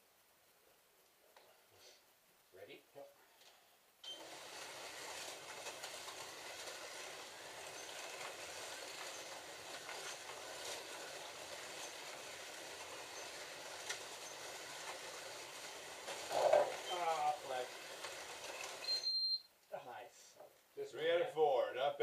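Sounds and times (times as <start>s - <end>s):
slot car motors whirring: 4.0s - 19.1s
cars rattling on plastic track: 4.2s - 19.1s.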